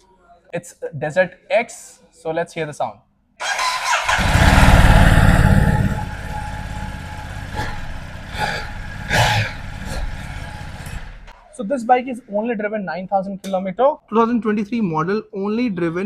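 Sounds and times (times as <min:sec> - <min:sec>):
motorcycle engine revving and idling: 0:03.4 - 0:11.3.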